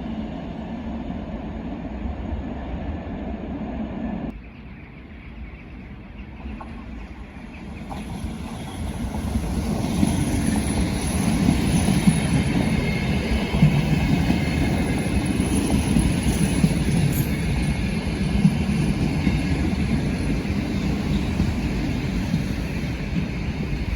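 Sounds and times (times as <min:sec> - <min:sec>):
train wheels rumbling on track: 0:05.9 - 0:23.9.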